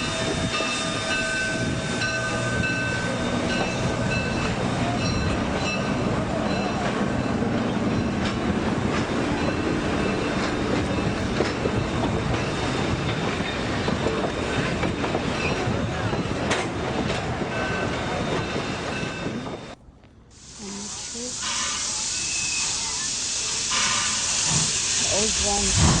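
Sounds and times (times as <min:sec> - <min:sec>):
train rumbling on rails: 0:00.0 - 0:26.0
high wheel squeal: 0:21.4 - 0:25.7.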